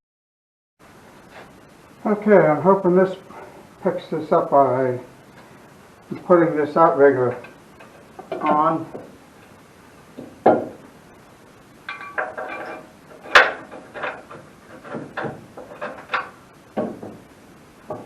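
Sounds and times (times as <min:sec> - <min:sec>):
metal parts clanking: 0:11.9 - 0:16.4.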